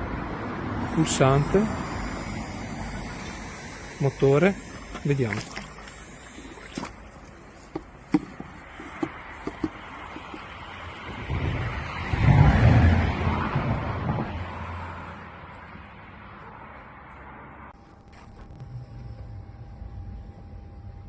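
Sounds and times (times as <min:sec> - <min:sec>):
pool vacuum running in water: 0:00.7 - 0:11.2
handling clicks and knocks: 0:07.6 - 0:10.6.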